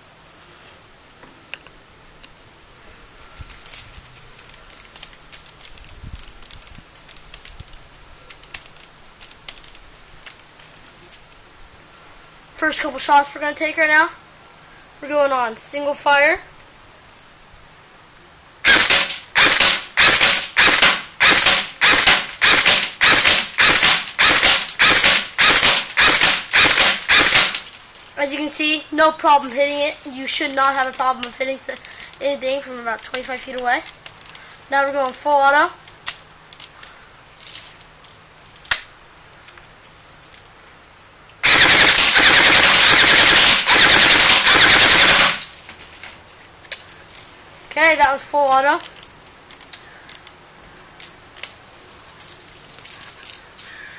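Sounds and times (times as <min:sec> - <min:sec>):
airsoft gun shots: 0:18.6 - 0:27.7, 0:41.4 - 0:45.5.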